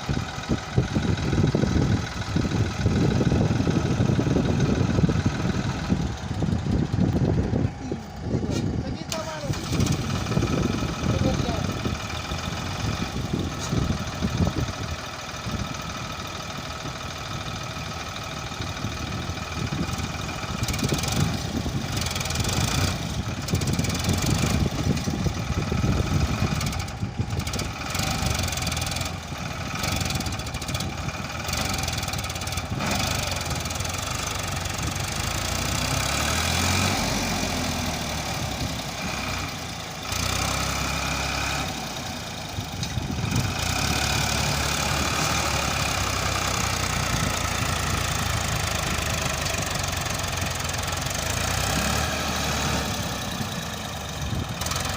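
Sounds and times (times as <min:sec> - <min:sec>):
diesel engines running: 0:00.0 - 0:54.9.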